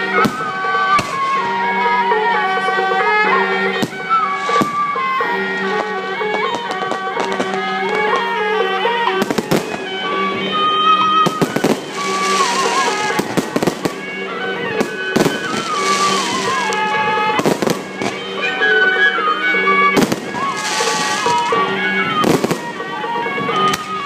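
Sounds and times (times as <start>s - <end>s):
fireworks bangs: 0.0s - 2.0s, 3.8s - 8.4s, 9.2s - 18.5s, 19.9s - 24.0s
music with held drone: 0.0s - 24.0s
wind instrument melody: 0.0s - 24.0s
fireworks hissing bursts: 11.3s - 18.3s, 20.0s - 22.8s.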